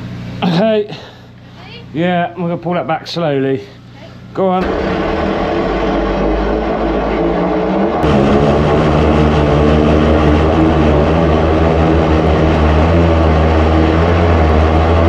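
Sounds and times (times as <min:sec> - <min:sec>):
jetting machine engine running: 0:04.6 - 0:15.0.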